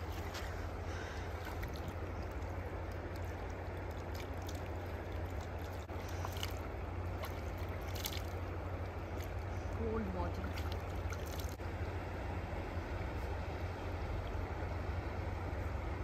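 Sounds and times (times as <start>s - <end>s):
water splashes: 0.0s - 11.8s
stream water running: 0.0s - 16.0s.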